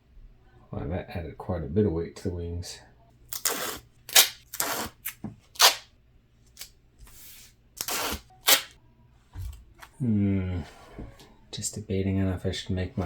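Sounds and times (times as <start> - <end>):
duct tape ripping off roll: 3.3 - 5.9, 7.8 - 8.8.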